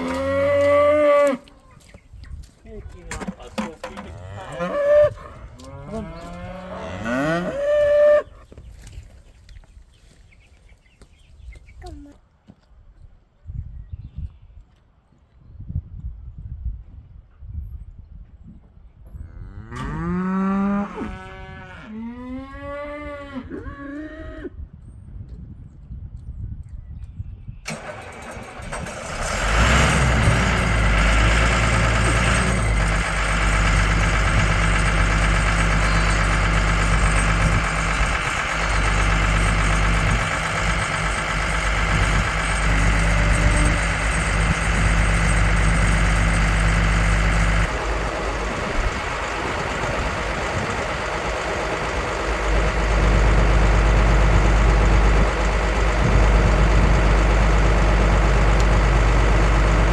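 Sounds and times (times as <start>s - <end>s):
vehicle engine idling: 27.7s - 59.9s.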